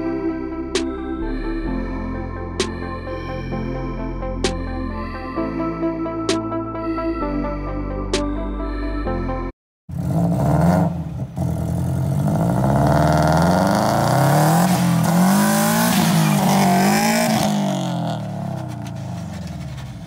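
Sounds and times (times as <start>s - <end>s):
car engine revving: 9.9s - 20.0s.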